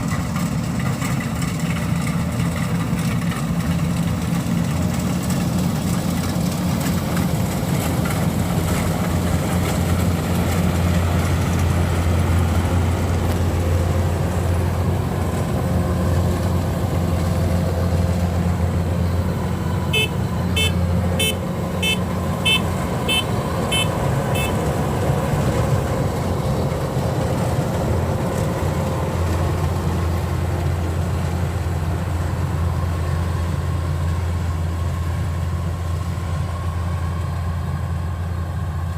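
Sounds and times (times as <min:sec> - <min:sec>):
diesel engine running: 0:00.0 - 0:38.9
warning buzzer beeps: 0:20.0 - 0:24.6.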